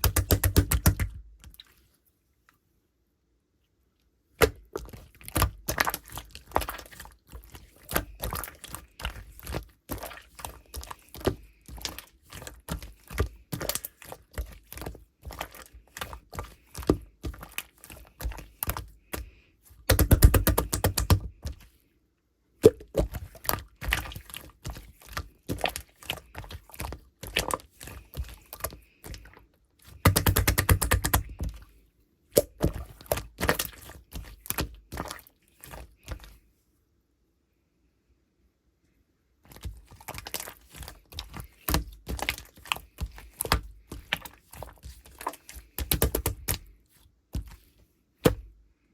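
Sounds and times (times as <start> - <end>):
slime crackling: 32.4 - 36.4, 39.5 - 46.7.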